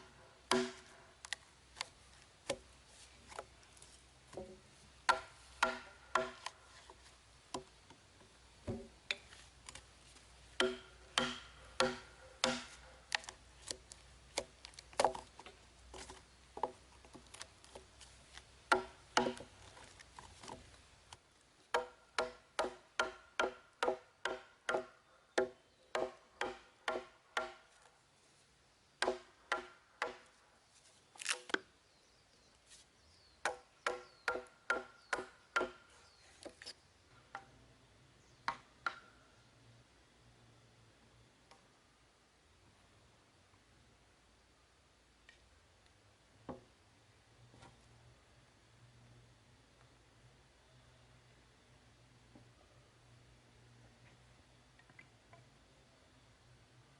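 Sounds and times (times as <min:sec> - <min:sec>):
tool striking wood: 0:00.5 - 0:00.9, 0:04.3 - 0:06.5, 0:10.6 - 0:12.8, 0:18.7 - 0:19.5, 0:21.7 - 0:27.6, 0:29.0 - 0:30.3, 0:33.4 - 0:35.8.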